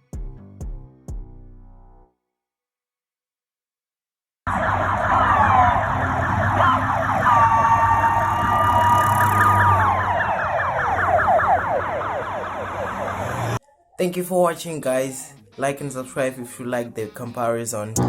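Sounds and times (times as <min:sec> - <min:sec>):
police sirens wailing: 0:04.5 - 0:13.6
police sirens yelping: 0:04.5 - 0:13.6
steady siren tone: 0:04.5 - 0:13.6.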